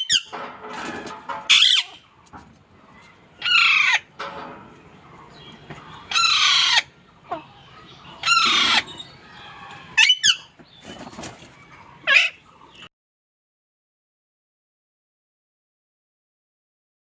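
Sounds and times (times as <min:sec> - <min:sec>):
parrot squawking: 0:01.5 - 0:02.0, 0:03.4 - 0:04.1, 0:05.9 - 0:10.5, 0:12.0 - 0:12.4.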